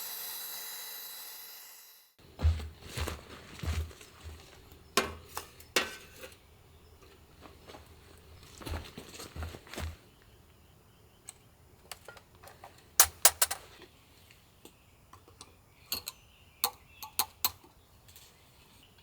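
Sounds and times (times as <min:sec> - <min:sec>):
camping gear clicking and clacking: 0:02.3 - 0:10.0, 0:11.3 - 0:13.9.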